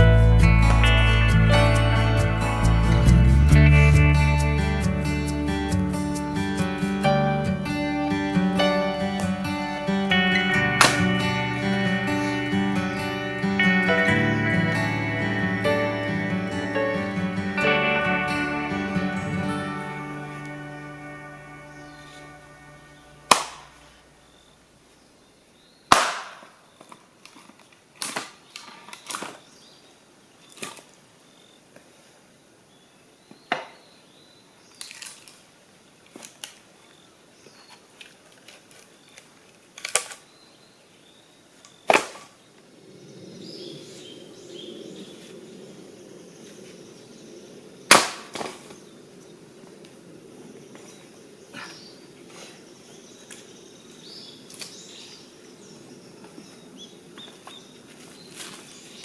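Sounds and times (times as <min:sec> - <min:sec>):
low steady rush: 0:00.0 - 0:24.0.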